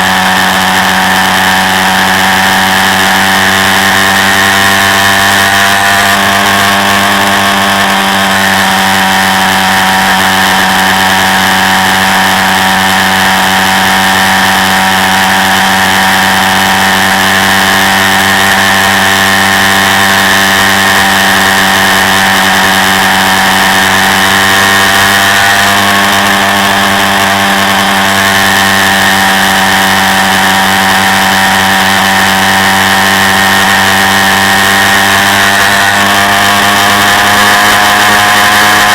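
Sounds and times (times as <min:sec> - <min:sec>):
quad bike engine running: 0:00.0 - 0:38.9.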